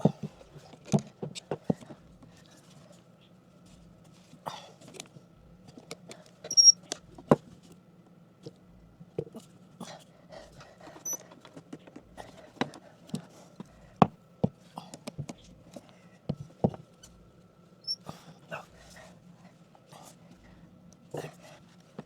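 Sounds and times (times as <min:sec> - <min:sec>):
brief high squeaks: 0:06.5 - 0:06.8, 0:11.0 - 0:11.2, 0:17.8 - 0:18.0.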